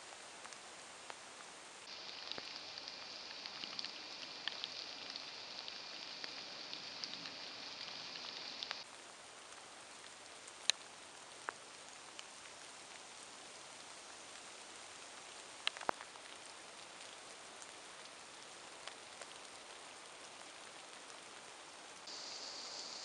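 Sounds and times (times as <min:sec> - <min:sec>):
faint steady rain: 0:00.0 - 0:23.0
sharp drips landing close: 0:01.8 - 0:08.8.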